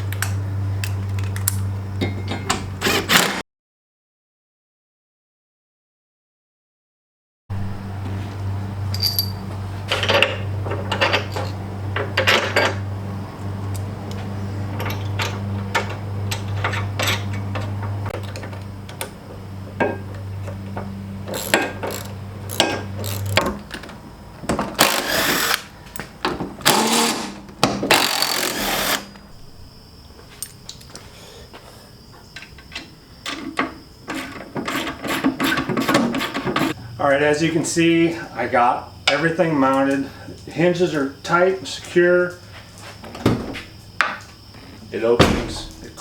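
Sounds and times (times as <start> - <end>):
power tool tightening bolts: 2.8 - 3.4, 21.3 - 23.5, 24.8 - 25.7, 26.6 - 29.1
steady low hum: 7.5 - 34.1, 36.3 - 46.0
metal hardware clinking: 8.9 - 10.3.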